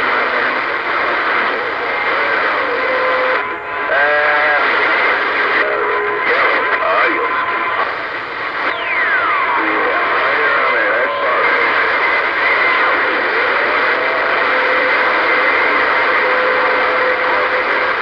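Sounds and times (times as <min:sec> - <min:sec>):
radio receiver hiss: 0:00.0 - 0:18.0.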